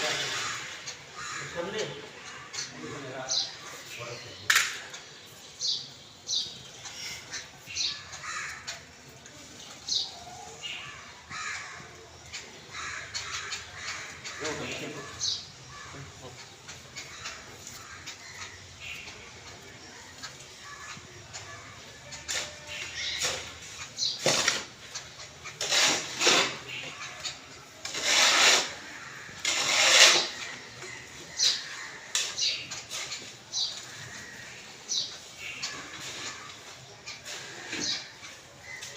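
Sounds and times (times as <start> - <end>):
birds calling: 0.0 - 38.9.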